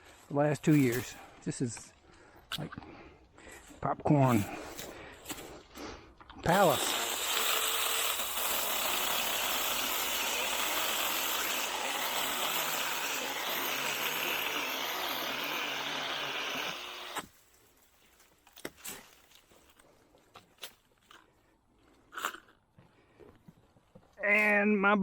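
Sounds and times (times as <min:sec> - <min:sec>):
mini chainsaw cutting wood: 0:06.4 - 0:17.3.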